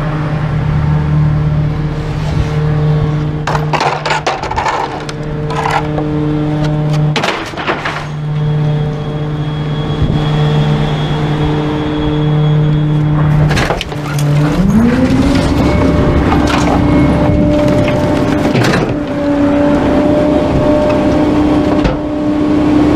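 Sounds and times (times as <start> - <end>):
garbage truck engine running: 0.0 - 22.9
knocks and rattles: 3.4 - 6.0, 6.9 - 8.2, 13.4 - 19.2.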